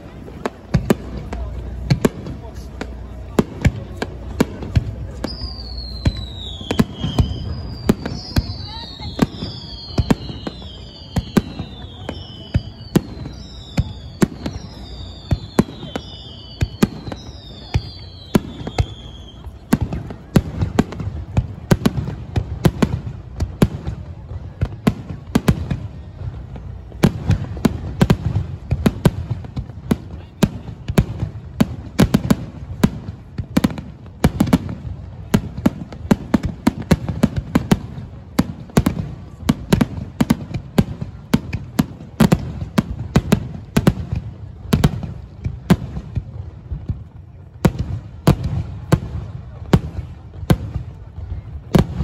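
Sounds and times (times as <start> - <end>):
fireworks bangs and crackles: 0.0 - 52.0
falling firework whistles: 4.0 - 20.8.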